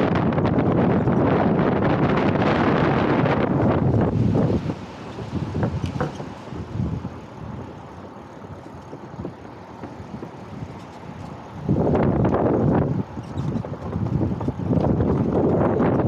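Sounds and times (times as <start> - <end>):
wind buffeting microphone: 0.0 - 16.0
bike tyres rolling: 3.1 - 16.0
small knocks and rattles: 5.6 - 6.4.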